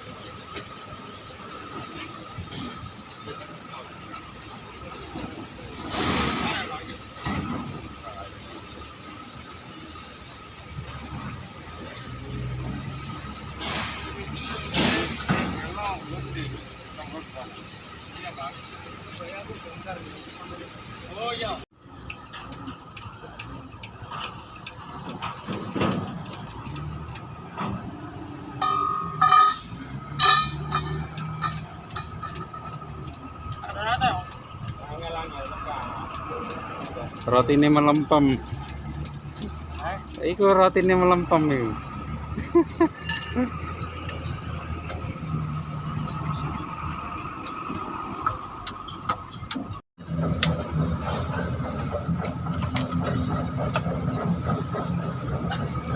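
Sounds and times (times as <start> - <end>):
truck engine idling: 0.0 - 55.9
short ringing metallic tones: 28.6 - 32.3
metallic tool clinks and taps: 43.0 - 43.4.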